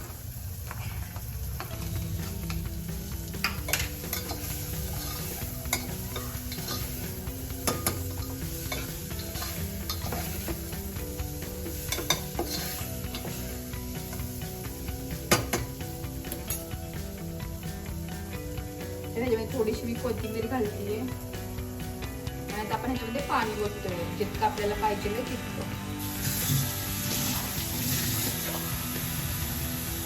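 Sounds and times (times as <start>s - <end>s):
masala sizzling in a pot: 0.0s - 30.0s
spoon scraping metal pot: 7.7s - 10.6s, 11.9s - 13.4s.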